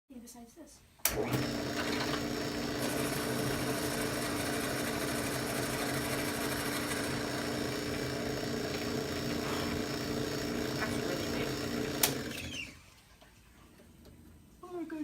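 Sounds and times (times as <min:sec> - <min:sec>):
power tool motor humming: 0:01.1 - 0:12.8.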